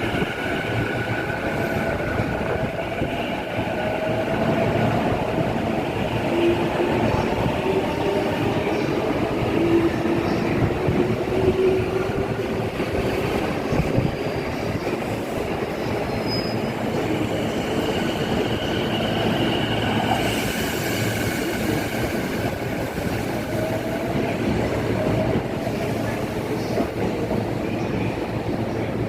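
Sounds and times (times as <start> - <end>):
wind on microphone: 0.0 - 16.1
train rumbling: 0.0 - 29.0.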